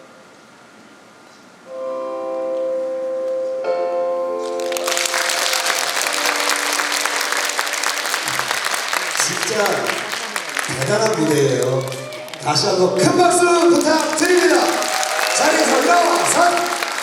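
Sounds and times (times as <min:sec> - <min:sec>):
music on held chords: 0:01.7 - 0:08.8
audience applause: 0:04.4 - 0:17.0.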